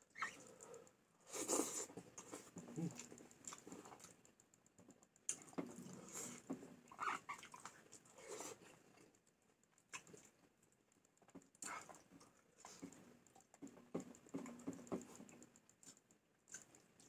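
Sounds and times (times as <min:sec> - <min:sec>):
person chewing: 0:01.3 - 0:04.2, 0:16.5 - 0:16.9.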